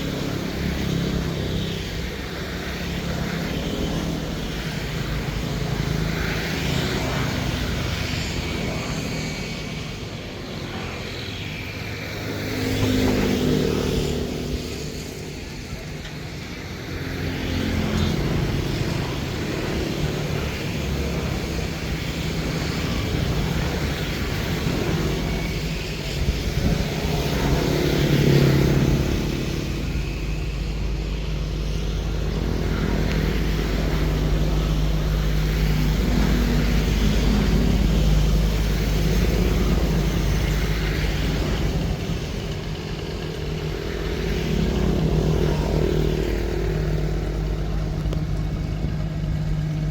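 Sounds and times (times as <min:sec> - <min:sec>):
boat engine running: 0:12.8 - 0:49.9.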